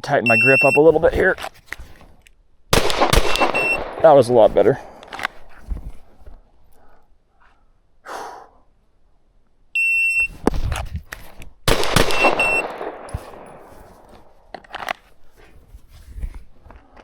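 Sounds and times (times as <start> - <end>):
shot timer start beep: 0.3 - 0.8, 3.4 - 3.8, 9.8 - 10.3, 12.1 - 12.7
pistol shots: 2.7 - 5.2, 11.7 - 13.7.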